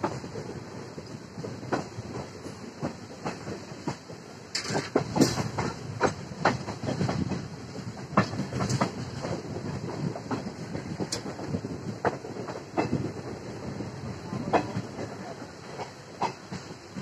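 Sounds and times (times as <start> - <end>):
train rumbling on track: 0.0 - 17.0
wheels clacking over rail joints: 0.0 - 17.0.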